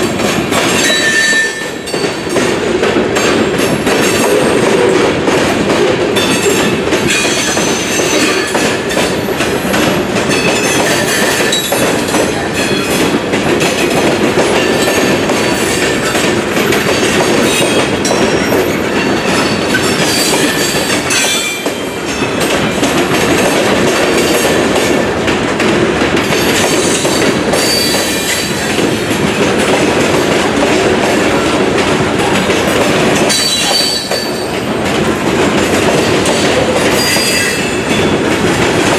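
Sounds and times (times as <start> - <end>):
train wheels clicking over rail joints: 0.0 - 38.9
train wheels squealing: 0.8 - 2.3, 27.6 - 28.7, 33.3 - 34.8, 37.0 - 38.1.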